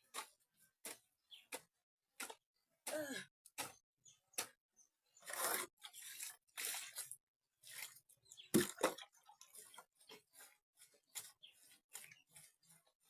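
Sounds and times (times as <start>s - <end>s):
wet mud being mixed: 5.1s - 13.0s.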